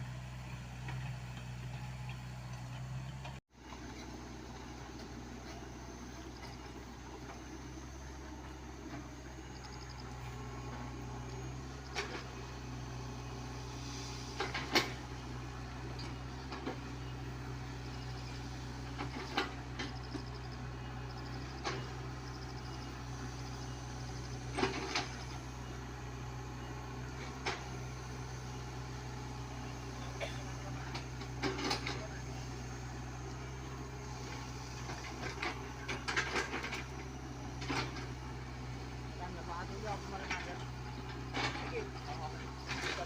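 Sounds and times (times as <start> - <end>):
excavator diesel engine running: 0.0 - 43.0.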